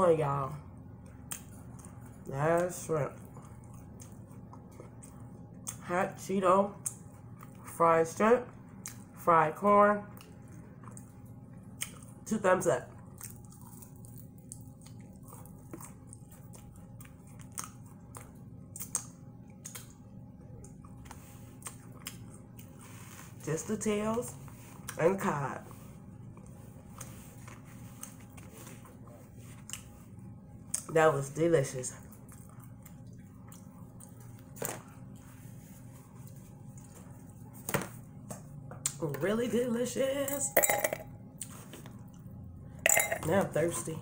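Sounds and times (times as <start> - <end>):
steady low hum: 0.0 - 44.0
person chewing food: 1.0 - 5.8, 8.7 - 9.1, 10.1 - 12.2, 12.9 - 23.4, 26.2 - 30.8, 32.1 - 37.3
crunchy chewing: 12.9 - 23.3
low hum: 42.0 - 43.6.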